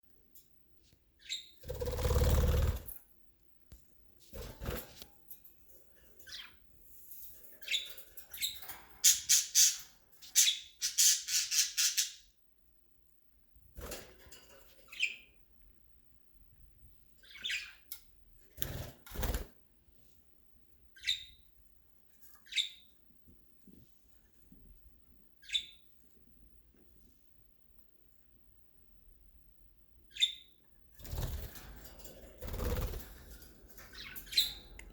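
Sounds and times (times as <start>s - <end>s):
wings flapping and rustling: 4.2s - 5.2s, 31.0s - 34.5s
budgerigars chirping and squawking: 7.6s - 12.3s, 17.2s - 17.8s, 21.0s - 21.4s, 25.4s - 25.8s, 33.8s - 34.9s.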